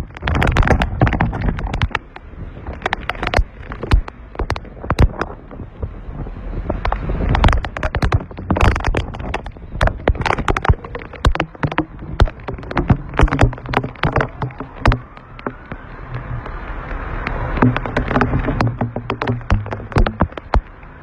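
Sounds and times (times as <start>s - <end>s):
sharp taps of raindrops: 0.0s - 21.0s
wind buffeting microphone: 0.0s - 21.0s
heavy rain: 5.8s - 21.0s.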